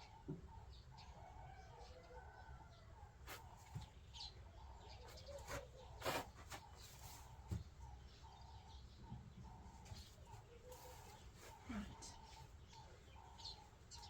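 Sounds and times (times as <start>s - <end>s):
birds chirping: 6.6s - 14.0s.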